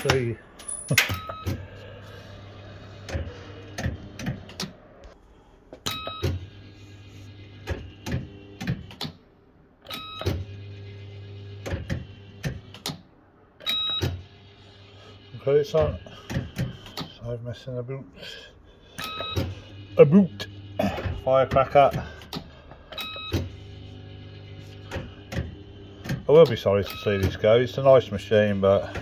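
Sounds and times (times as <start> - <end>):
reel motors humming: 0.0 - 5.2, 18.8 - 29.0.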